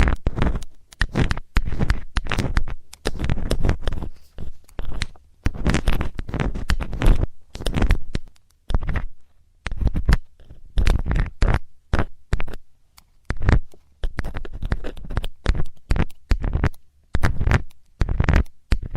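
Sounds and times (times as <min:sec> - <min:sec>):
metal ear tool scraping: 0:00.0 - 0:11.6.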